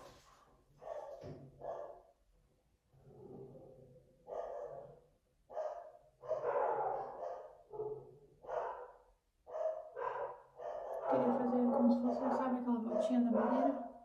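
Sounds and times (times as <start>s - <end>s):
dogs barking: 0.8s - 2.1s, 4.2s - 14.0s.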